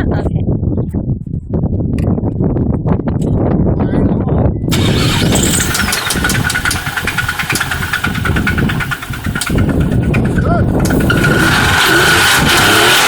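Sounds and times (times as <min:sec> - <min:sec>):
engine knocking clatter: 0:04.7 - 0:13.0
steady engine whine: 0:04.7 - 0:13.0.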